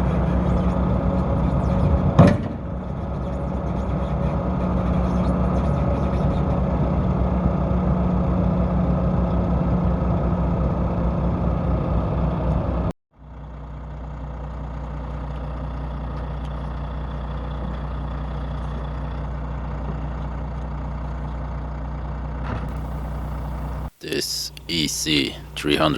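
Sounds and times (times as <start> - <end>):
diesel engine idling: 13.3 - 25.9.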